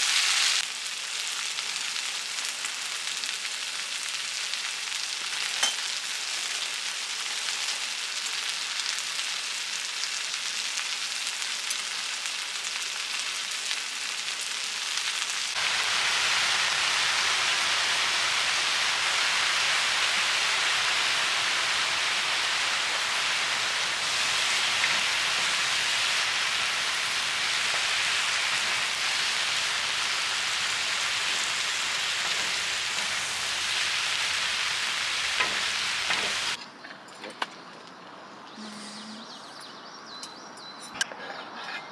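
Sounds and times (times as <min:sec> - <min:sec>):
food sizzling in a pan: 0:00.0 - 0:36.6.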